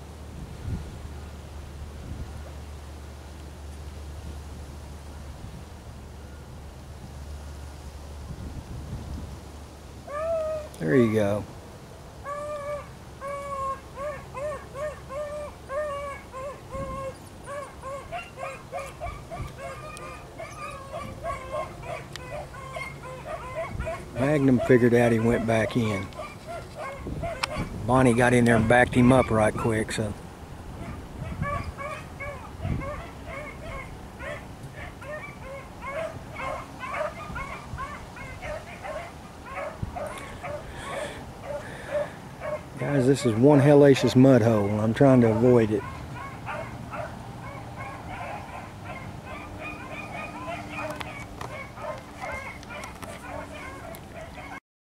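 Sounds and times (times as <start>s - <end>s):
dogs yelping: 10.1s - 11.4s, 12.2s - 30.1s, 30.7s - 54.6s
hounds baying: 10.1s - 11.4s, 12.2s - 30.1s, 30.7s - 54.6s
higher-voiced hound barking: 12.2s - 30.1s, 30.8s - 54.6s.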